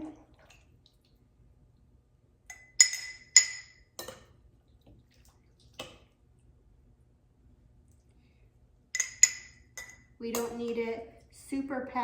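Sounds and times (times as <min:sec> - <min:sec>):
utensil clinking against glass jars: 0:09.0 - 0:10.8.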